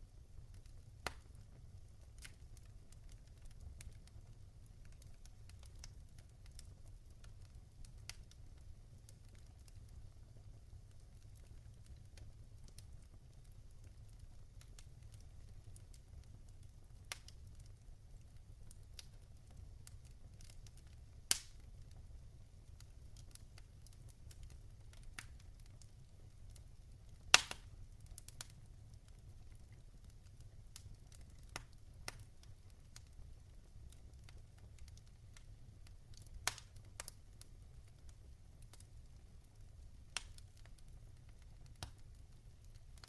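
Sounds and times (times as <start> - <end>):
logs crackling in fireplace: 0.0 - 43.0
low rumble of flames: 0.0 - 43.0
loud wood snaps: 27.3 - 27.6.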